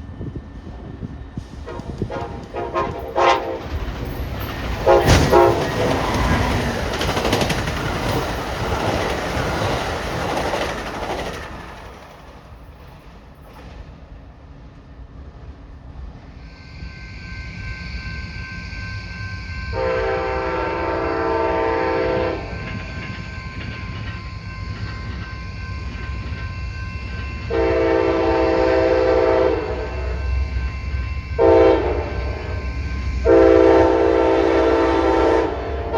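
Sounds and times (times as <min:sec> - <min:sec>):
train rumble: 0:00.0 - 0:35.9
locomotive air horn: 0:01.6 - 0:03.8, 0:04.8 - 0:06.2, 0:18.6 - 0:22.9, 0:27.5 - 0:30.2, 0:31.4 - 0:32.6, 0:33.2 - 0:35.9.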